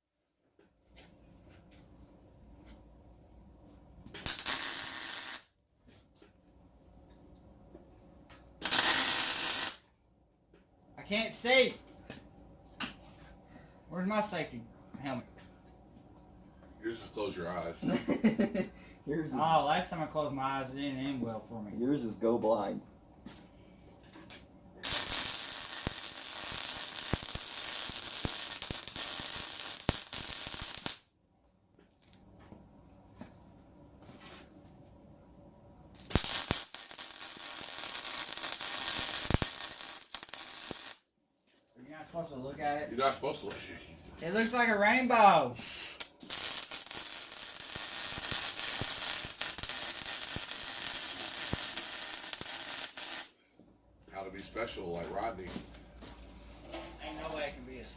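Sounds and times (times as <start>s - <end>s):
arc welder crackling sizzle: 3.7s - 5.5s, 8.3s - 9.9s, 24.3s - 31.1s, 35.9s - 41.0s, 44.2s - 53.4s, 57.0s - 57.9s
faint hum: 10.0s - 24.8s.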